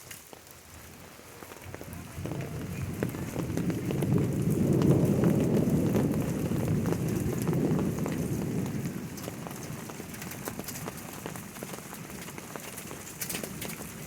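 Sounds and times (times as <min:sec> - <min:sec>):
rain falling: 0:00.0 - 0:14.0
low rumble: 0:01.6 - 0:11.1.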